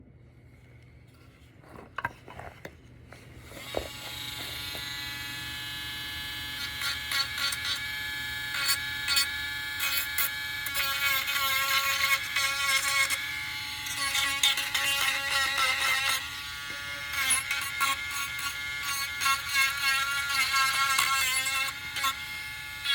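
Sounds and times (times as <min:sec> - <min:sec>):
sander grinding: 0:03.4 - 0:22.9
electric sander motor whining: 0:03.5 - 0:10.6.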